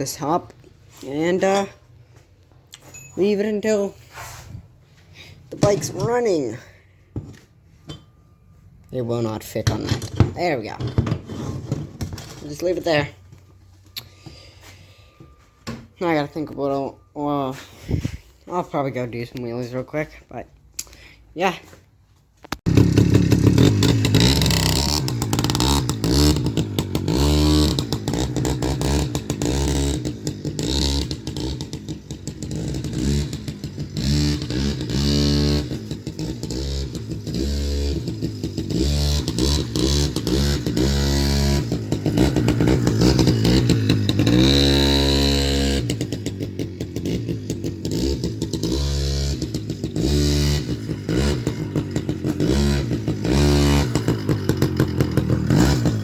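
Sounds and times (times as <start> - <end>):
motorcycle engine revving: 22.6 - 56.0.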